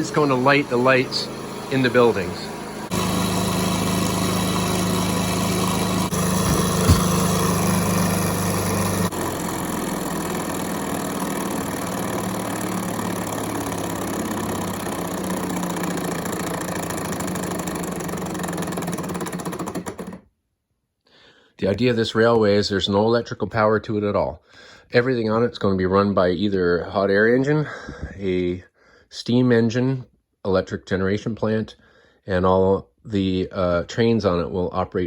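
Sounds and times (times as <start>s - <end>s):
engine mechanical whir: 0.0s - 20.2s.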